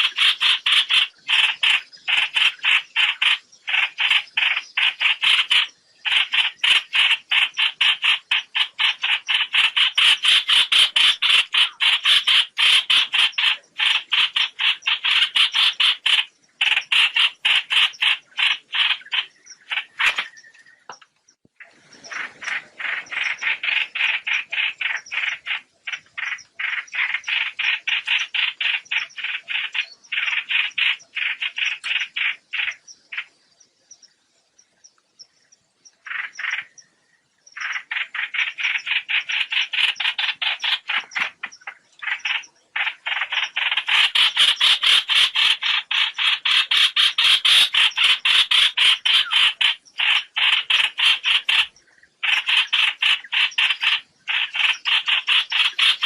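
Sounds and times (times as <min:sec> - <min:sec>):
bird rapid rasping calls: 0:00.0 - 0:21.0, 0:21.6 - 0:33.4, 0:36.0 - 0:36.9, 0:37.6 - 0:56.0.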